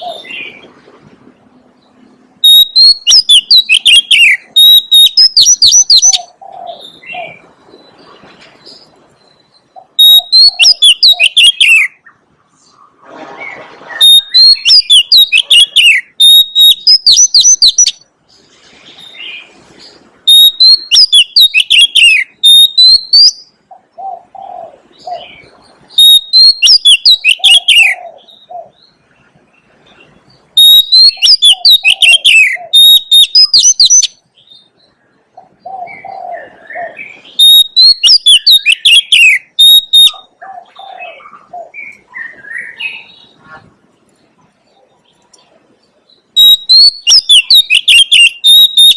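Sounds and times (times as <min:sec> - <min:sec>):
bird singing whistled phrases: 0:02.4 - 0:07.4, 0:09.2 - 0:12.0, 0:14.0 - 0:18.0, 0:20.3 - 0:23.5, 0:25.9 - 0:28.5, 0:30.6 - 0:34.2, 0:35.9 - 0:40.3, 0:46.4 - 0:48.9.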